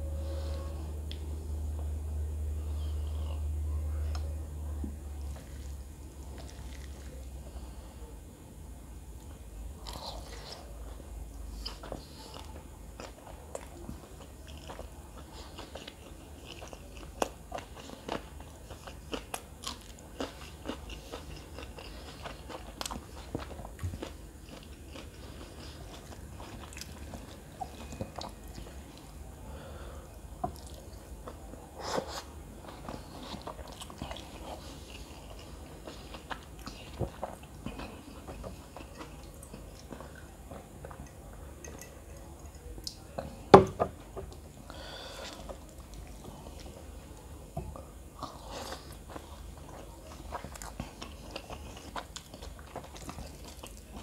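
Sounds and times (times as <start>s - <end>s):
person chewing: 5.3s - 7.6s, 11.6s - 29.2s, 29.8s - 43.3s, 44.3s - 54.0s.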